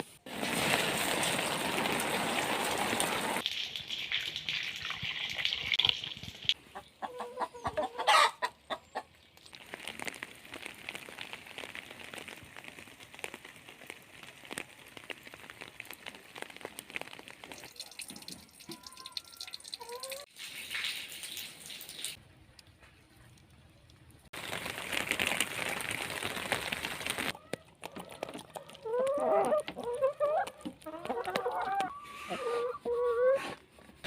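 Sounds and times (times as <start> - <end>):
soft rain patter: 0.2 - 6.6, 9.0 - 32.0
chickens clucking and calling: 6.6 - 9.1, 28.8 - 33.6.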